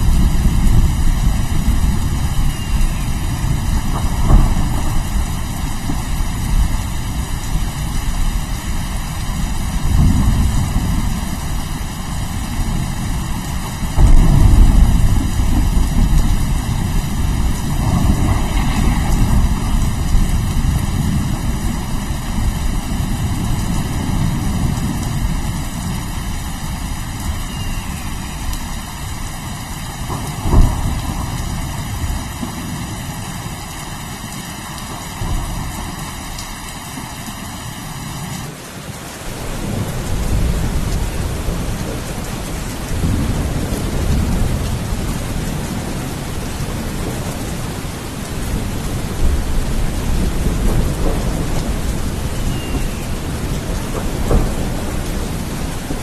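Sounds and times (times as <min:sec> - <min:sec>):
rolling thunder rumble: 0:00.0 - 0:37.1, 0:39.3 - 0:56.0
steady rain: 0:00.0 - 0:56.0
sharp thunder crack: 0:02.9 - 0:06.7, 0:14.0 - 0:22.0, 0:30.1 - 0:32.7.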